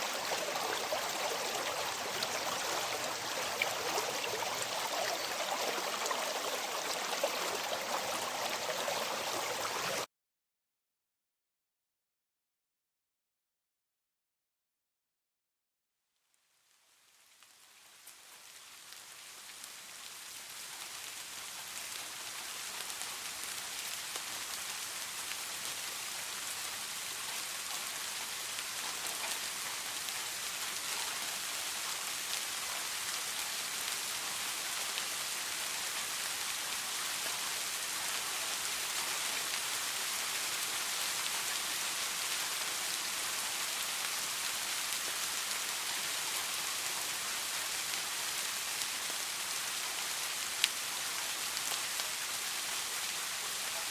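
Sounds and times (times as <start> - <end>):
soft rain falling: 0.0 - 10.1, 16.1 - 53.9.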